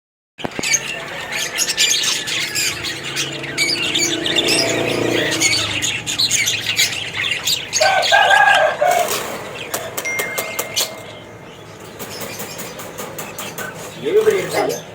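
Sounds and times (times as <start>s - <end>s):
low-pitched bird call: 0.4s - 11.5s
cockatiels chirping and squawking: 0.4s - 14.9s.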